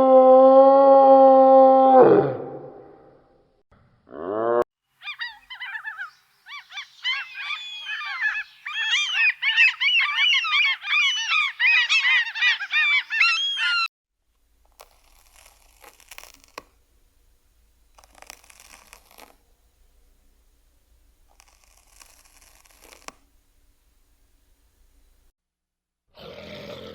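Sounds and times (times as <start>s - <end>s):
flock of birds calling: 5.0s - 13.9s.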